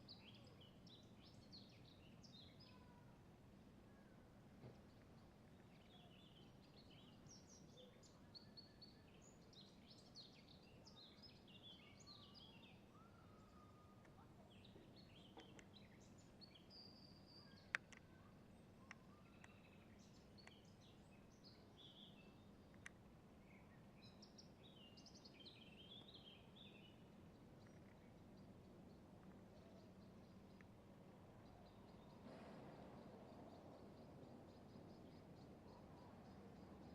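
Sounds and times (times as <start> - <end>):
songbirds chirping and trilling: 0.0 - 36.9
sharp clicks: 17.6 - 18.1.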